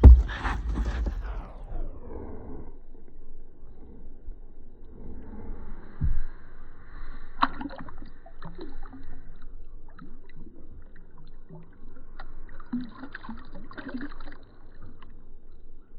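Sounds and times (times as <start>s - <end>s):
knocks: 0.0s - 1.4s
water sloshing and gurgling: 0.0s - 1.7s, 7.4s - 15.9s
small splashes: 12.5s - 15.1s.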